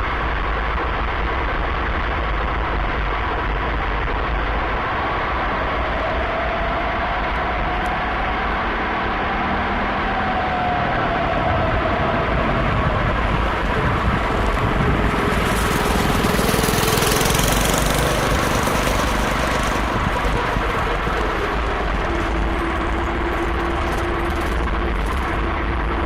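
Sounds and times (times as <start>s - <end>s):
tyre hiss and wind: 0.0s - 26.0s
small petrol engine running: 13.1s - 26.0s.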